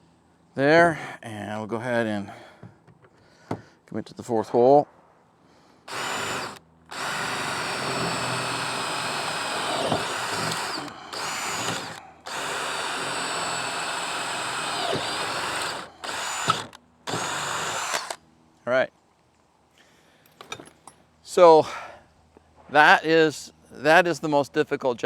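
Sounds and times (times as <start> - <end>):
electric drill boring: 5.9 - 18.2.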